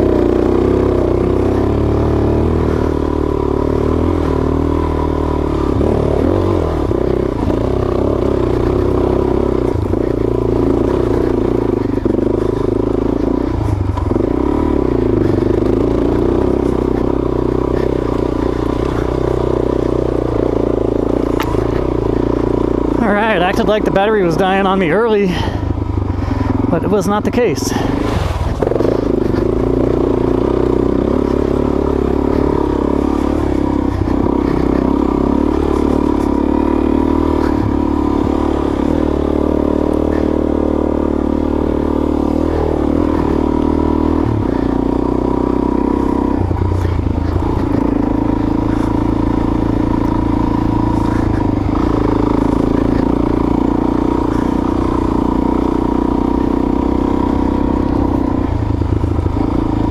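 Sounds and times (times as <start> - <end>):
motorcycle engine revving: 0.0 - 59.9
man talking: 23.0 - 25.6, 26.7 - 28.0.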